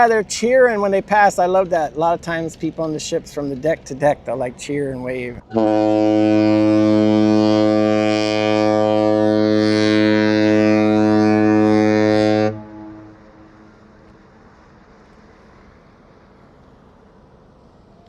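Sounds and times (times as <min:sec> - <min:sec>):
ship horn long blast: 0:05.5 - 0:14.0.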